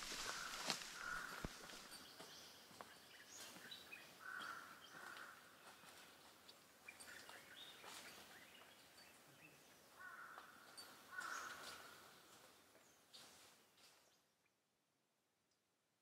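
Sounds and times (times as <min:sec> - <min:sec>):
harsh bird calls: 0:00.0 - 0:02.5, 0:10.0 - 0:12.2
bird chirps: 0:00.2 - 0:12.1.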